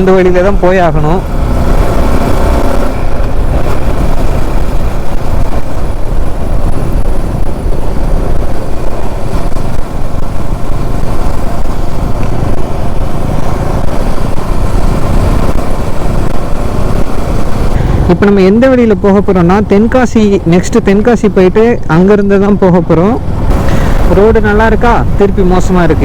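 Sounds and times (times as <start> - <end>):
motorcycle engine running: 0.0 - 26.0
road noise: 0.0 - 26.0
wind rush: 0.0 - 26.0.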